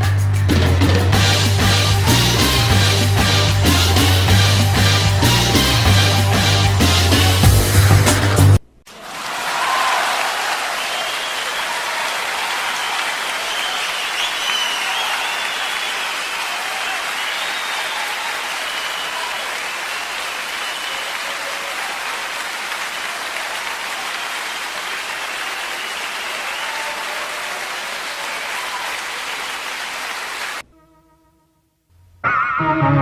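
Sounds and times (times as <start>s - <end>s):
crowd clapping: 8.0s - 30.6s
crowd shouts: 8.9s - 30.6s
whistles: 10.7s - 21.6s, 25.5s - 27.1s.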